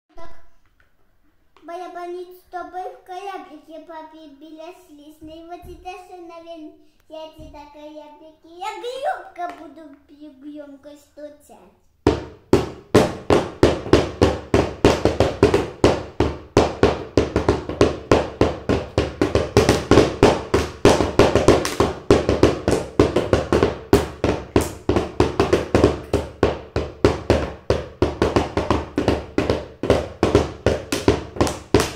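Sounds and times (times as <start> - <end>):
child banging on hollow object: 12.0 - 31.9.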